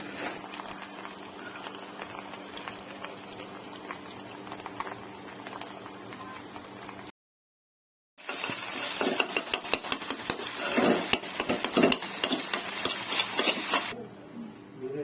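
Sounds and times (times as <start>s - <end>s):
utensil scraping metal pan: 8.2s - 14.0s.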